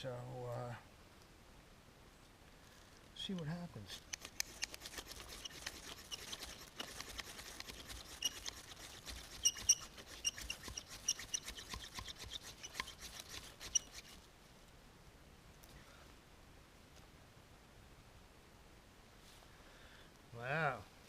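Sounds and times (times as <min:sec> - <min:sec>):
knife scraping fire steel: 0:03.4 - 0:14.2.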